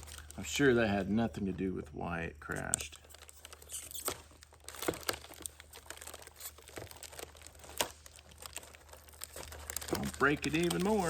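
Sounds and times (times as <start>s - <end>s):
tape crumpling: 0.0s - 1.8s, 2.4s - 11.0s
adhesive tape peeling: 2.6s - 11.0s.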